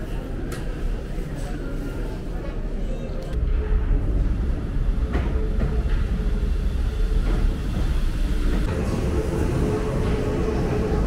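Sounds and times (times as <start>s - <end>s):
steady train whine: 3.4s - 11.0s
train wheels rumbling on rails: 3.4s - 11.0s.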